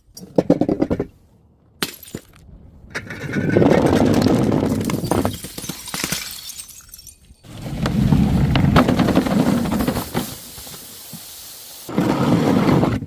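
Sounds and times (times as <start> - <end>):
glass breaking and crunching: 4.7 - 7.5.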